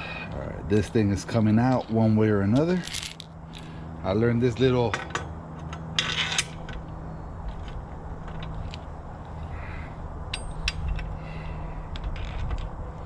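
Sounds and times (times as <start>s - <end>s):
metal tools clinking: 2.6s - 3.7s.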